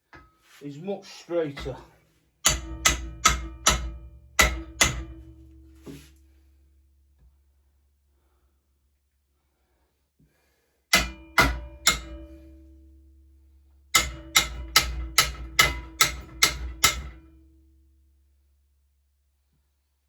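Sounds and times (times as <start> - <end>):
hammer striking metal: 2.4 - 6.0, 10.9 - 12.8, 13.9 - 17.4.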